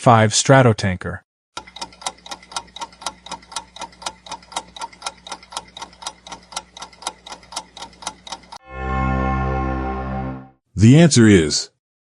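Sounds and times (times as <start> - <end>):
clock ticking: 1.6 - 8.6.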